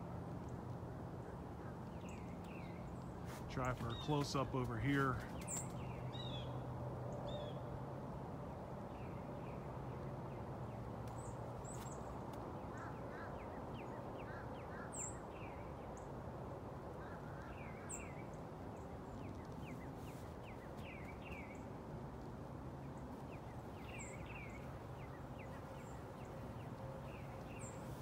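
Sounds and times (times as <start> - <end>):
small songbirds chirping: 0.0 - 7.7, 17.0 - 28.0.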